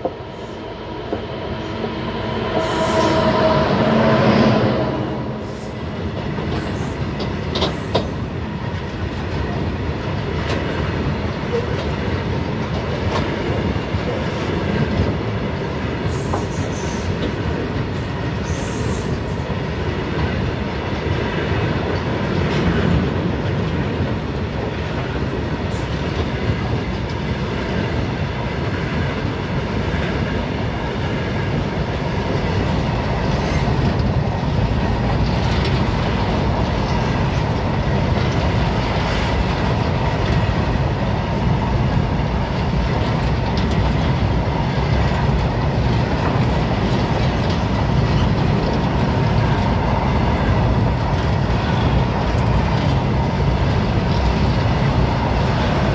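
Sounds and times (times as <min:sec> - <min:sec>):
train wheels rumbling on rail: 0:00.0 - 0:55.9
clatter over rail joints: 0:41.9 - 0:55.9.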